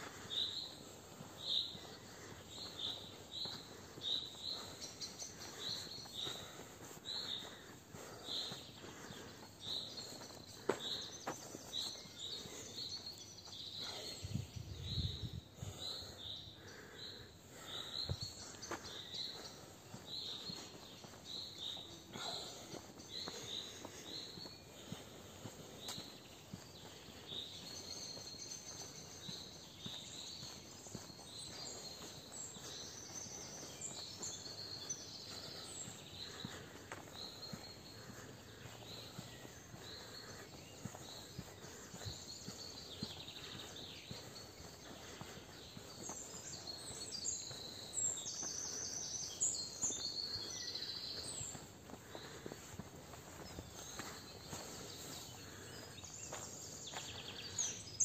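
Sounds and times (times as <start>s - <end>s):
soft outdoor background: 0.0s - 58.0s
bird chirping: 0.2s - 58.0s.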